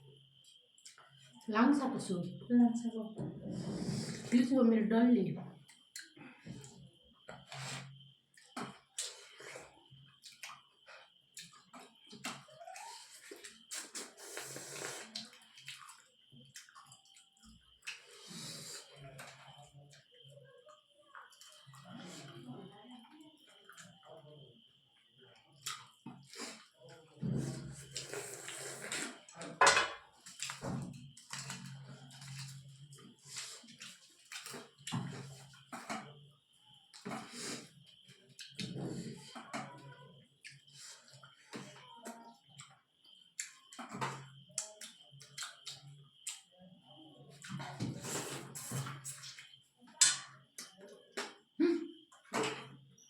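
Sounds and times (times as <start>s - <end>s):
slurping and chewing: 12.8s - 19.4s, 27.4s - 29.3s
wet chewing and slurping: 27.8s - 29.2s.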